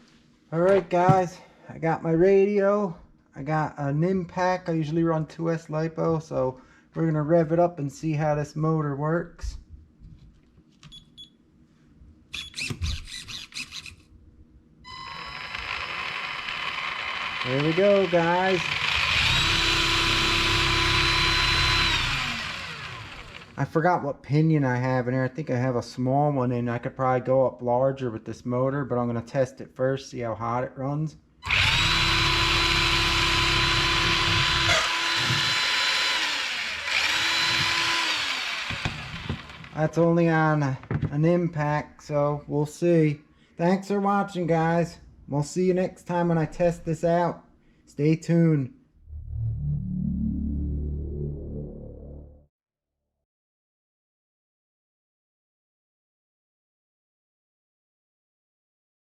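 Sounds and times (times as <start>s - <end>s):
electric motor whine: 14.9s - 23.6s, 31.4s - 39.8s.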